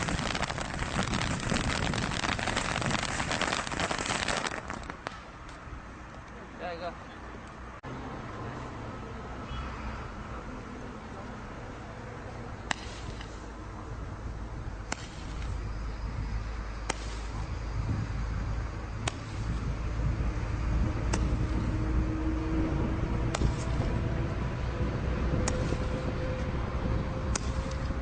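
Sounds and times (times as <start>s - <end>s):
firework cracks: 0.0s - 5.6s, 12.7s - 13.4s, 14.8s - 15.6s, 16.8s - 17.4s, 19.0s - 19.6s, 23.3s - 23.9s
steady low rumble: 0.0s - 6.4s, 10.1s - 28.0s.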